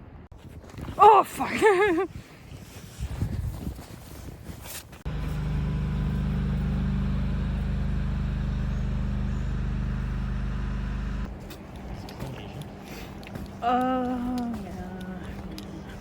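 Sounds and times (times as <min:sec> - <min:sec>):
vehicle engine humming: 0:05.1 - 0:16.0.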